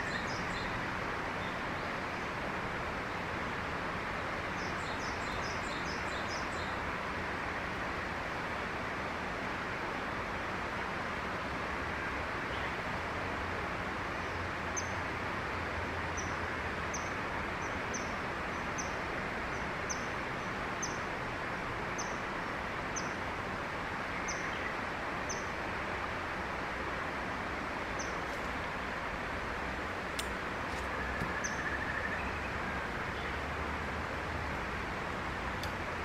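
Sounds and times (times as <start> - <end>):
bird chirping: 30.9 - 33.4.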